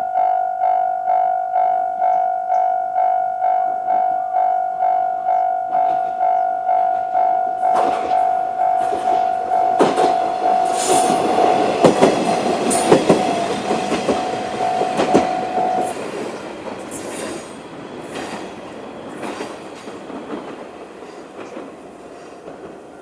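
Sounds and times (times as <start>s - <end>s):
electronic crossing warning bell: 0.0s - 19.4s
railcar wheels knocking over rail joints: 7.7s - 8.2s, 8.8s - 23.0s.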